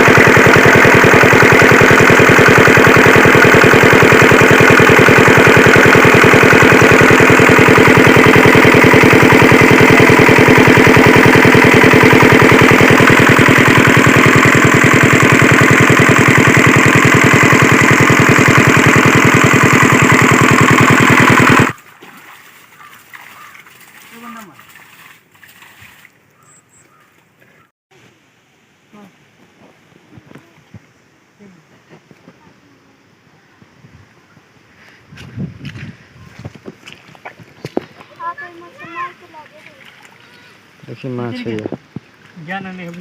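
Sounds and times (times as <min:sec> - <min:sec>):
diesel engine running: 0:00.0 - 0:21.8.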